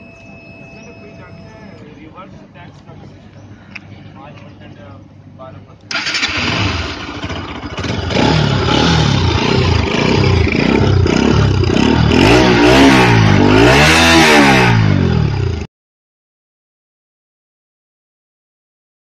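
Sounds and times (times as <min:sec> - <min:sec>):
motorcycle engine revving: 0:05.9 - 0:15.7.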